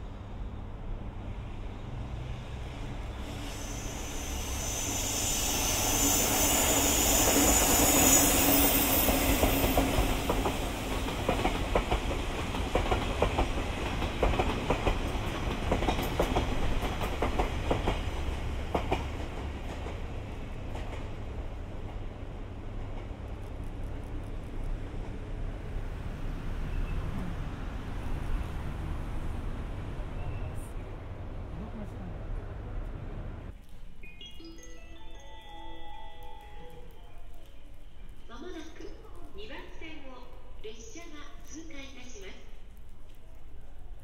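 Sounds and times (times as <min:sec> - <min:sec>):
electric locomotive passing: 0:00.0 - 0:44.0
high hiss: 0:03.2 - 0:09.8.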